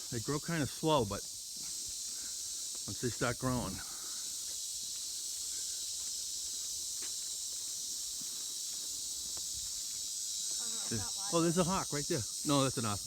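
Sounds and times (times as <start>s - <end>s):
insects droning: 0.0s - 13.0s
faint footsteps: 4.3s - 11.4s.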